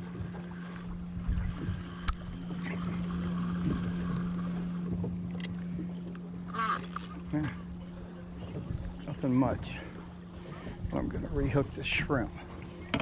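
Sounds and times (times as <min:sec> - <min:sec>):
steady low hum: 0:00.0 - 0:13.0
water lapping: 0:00.0 - 0:13.0
wind noise: 0:01.1 - 0:02.2.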